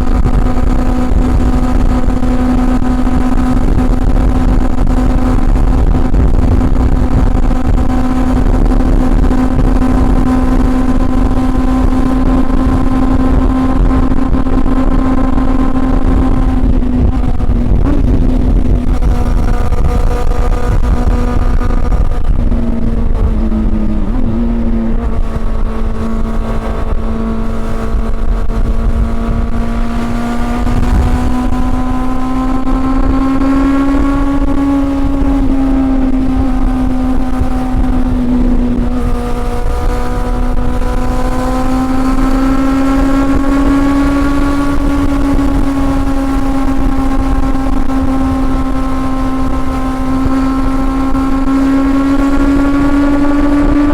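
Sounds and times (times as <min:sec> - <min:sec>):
steady low rumble: 0:00.0 - 0:41.8
motorcycle engine running: 0:00.0 - 0:53.9.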